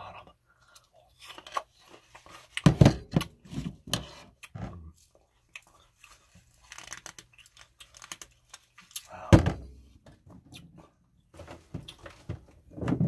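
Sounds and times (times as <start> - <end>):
chewing and mouth sounds: 4.4 - 9.2.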